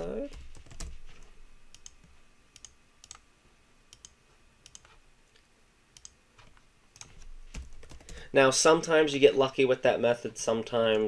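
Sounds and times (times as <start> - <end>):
faint computer mouse clicks: 1.7 - 3.2, 3.9 - 5.4, 6.0 - 6.2.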